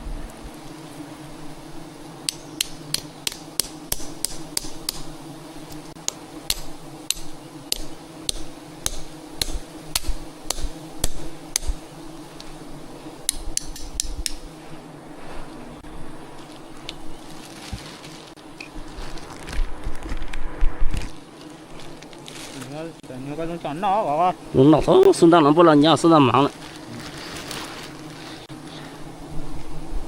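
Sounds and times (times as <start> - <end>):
hand tool striking hard surface: 2.3 - 5.1, 6.5 - 11.8.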